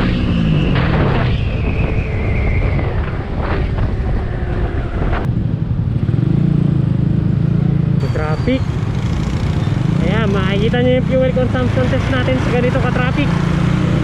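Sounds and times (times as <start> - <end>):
wind on microphone: 0.0 - 5.9
motorcycle engine: 2.8 - 14.0.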